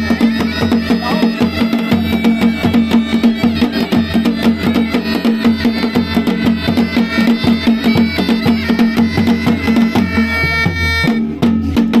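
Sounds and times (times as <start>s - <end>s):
bagpipe melody over drone: 0.0s - 11.3s
drums beating fast rhythm: 0.0s - 12.0s.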